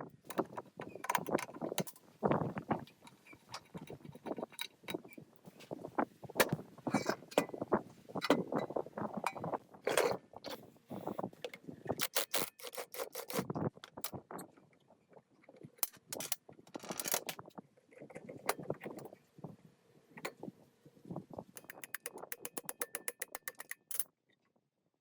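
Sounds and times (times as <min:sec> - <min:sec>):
metal parts clicking and knocking: 0:00.3 - 0:02.0, 0:12.0 - 0:14.2, 0:15.8 - 0:17.4, 0:21.6 - 0:24.1.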